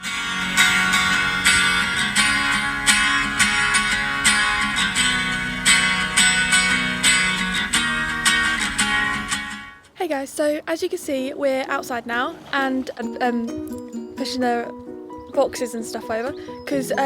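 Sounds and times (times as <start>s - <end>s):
strummed acoustic guitar: 0.0s - 9.9s.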